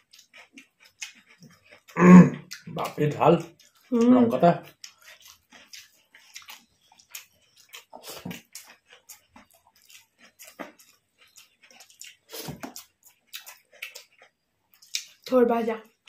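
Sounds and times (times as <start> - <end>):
chewing and lip smacks: 0.0 - 16.0.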